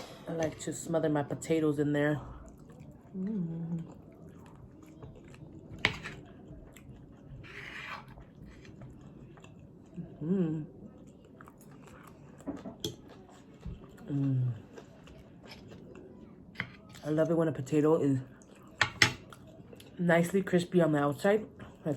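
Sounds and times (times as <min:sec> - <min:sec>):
chewing crispy food: 0:02.2 - 0:07.5, 0:08.1 - 0:17.1, 0:18.2 - 0:20.0
person humming: 0:03.2 - 0:03.9.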